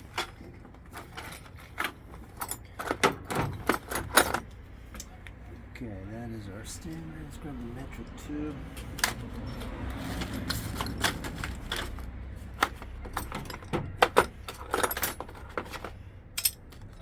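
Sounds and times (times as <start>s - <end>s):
metal tools clinking: 0.0s - 5.2s, 8.8s - 17.0s.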